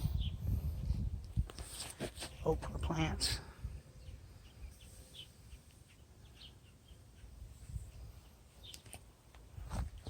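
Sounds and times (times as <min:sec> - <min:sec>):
low rumble on microphone: 0:00.0 - 0:01.6
faint bird chirps: 0:03.8 - 0:08.9.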